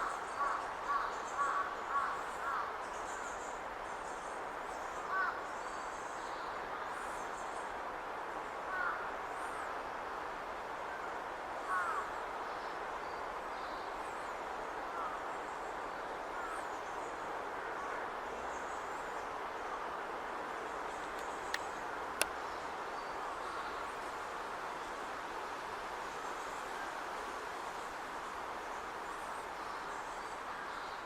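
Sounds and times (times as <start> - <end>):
sharp clicks: 21.2 - 22.3.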